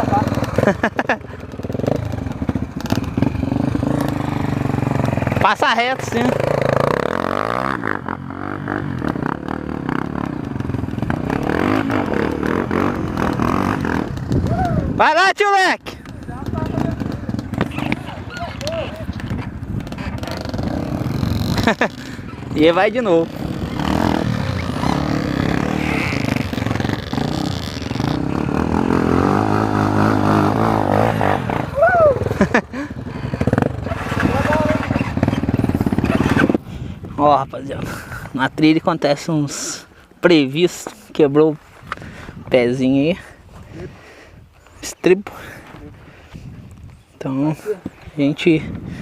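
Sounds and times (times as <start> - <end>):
motorcycle engine revving: 0.0 - 15.0, 16.0 - 39.9.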